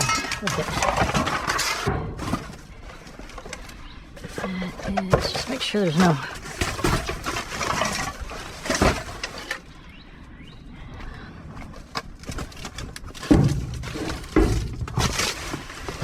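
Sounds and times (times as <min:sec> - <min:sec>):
trash rustling and clattering: 0:00.0 - 0:09.9, 0:11.5 - 0:16.0.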